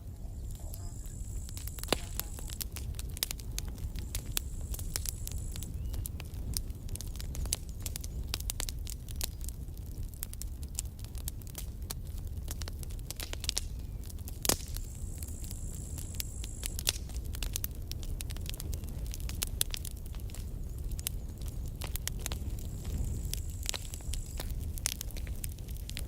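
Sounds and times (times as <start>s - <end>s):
low steady rumble: 0.0s - 13.0s
campfire wood crackling: 0.0s - 26.0s.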